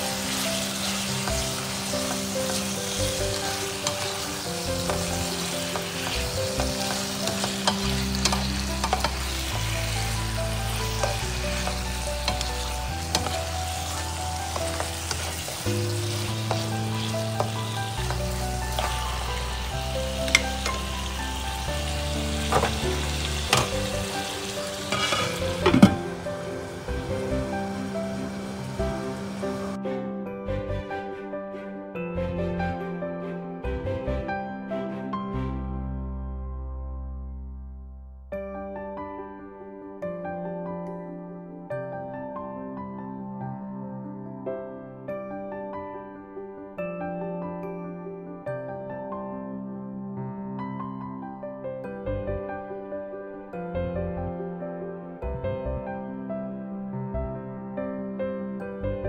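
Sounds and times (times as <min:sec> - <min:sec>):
beef sizzling in a pan: 0:00.0 - 0:29.8
spatula stirring and scraping: 0:00.7 - 0:19.4, 0:24.8 - 0:26.0.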